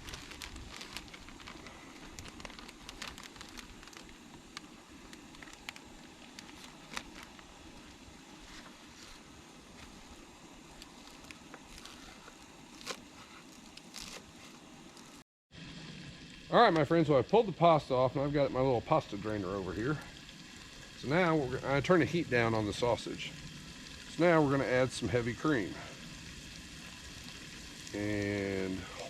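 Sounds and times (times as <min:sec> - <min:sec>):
sausage sizzling in a frying pan: 0:15.6 - 0:28.9.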